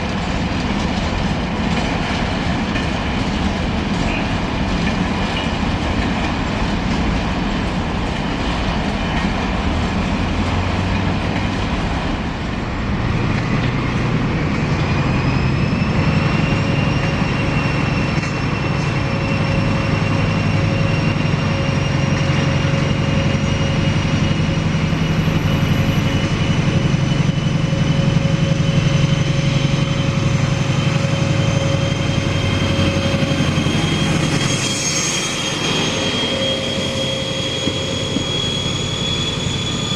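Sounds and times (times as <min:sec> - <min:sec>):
train rumble: 0:00.0 - 0:39.9
thin whining tones rising: 0:13.8 - 0:39.9.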